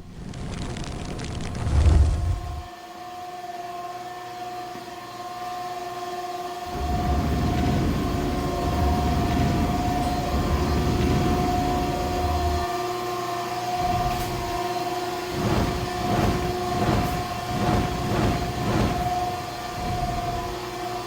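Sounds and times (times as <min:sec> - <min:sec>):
deep rumble: 0:00.0 - 0:02.7, 0:06.7 - 0:12.7, 0:15.3 - 0:20.6
high mechanical hum: 0:06.4 - 0:21.0.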